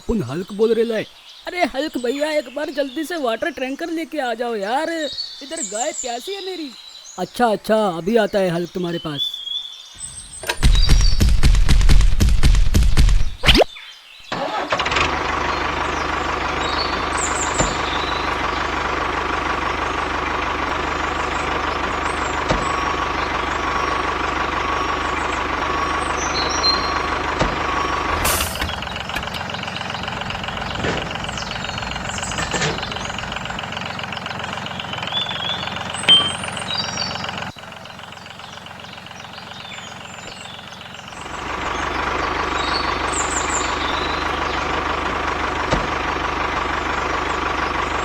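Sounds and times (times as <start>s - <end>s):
tractor engine running: 10.0s - 13.5s, 14.3s - 48.0s.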